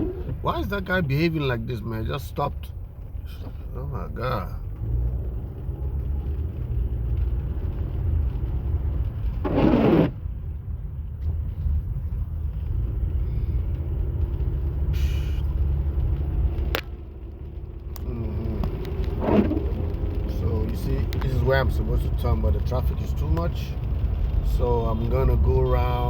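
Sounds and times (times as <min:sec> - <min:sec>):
car engine and tyres rumbling: 0:00.0 - 0:26.0
rain: 0:00.0 - 0:26.0
short hiss: 0:14.9 - 0:15.5.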